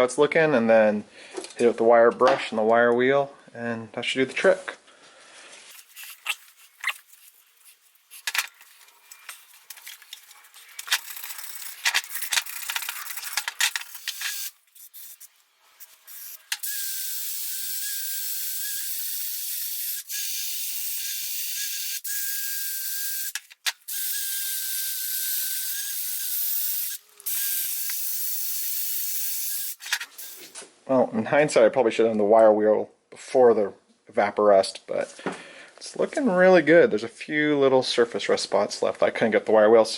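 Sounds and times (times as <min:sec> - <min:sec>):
scraping and clicking on steel: 0:05.7 - 0:16.6
wire wheel grinding metal: 0:07.5 - 0:16.8.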